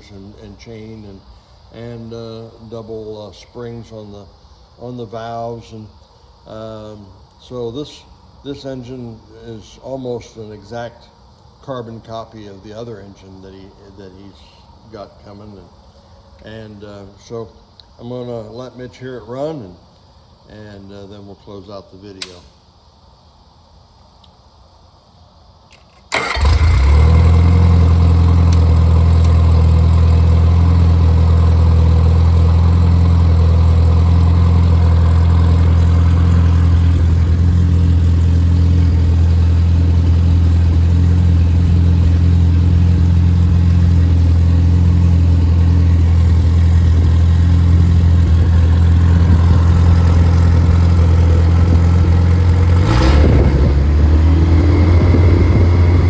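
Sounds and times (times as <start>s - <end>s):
car engine starting and running: 26.1s - 56.0s.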